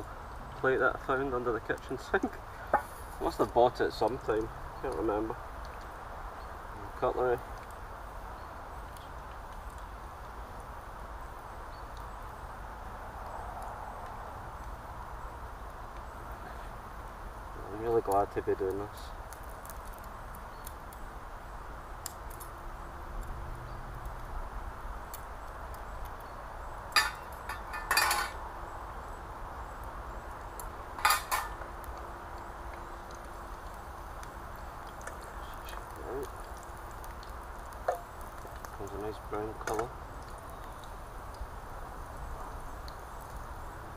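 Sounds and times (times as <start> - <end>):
metal utensils clattering on pan: 27.0 - 28.4, 31.0 - 31.6.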